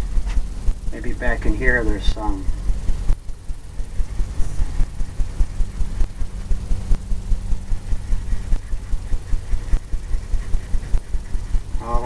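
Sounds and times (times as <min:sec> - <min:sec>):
faint steady hum: 0:00.0 - 0:12.0
paintbrush dabbing on canvas: 0:03.7 - 0:12.0.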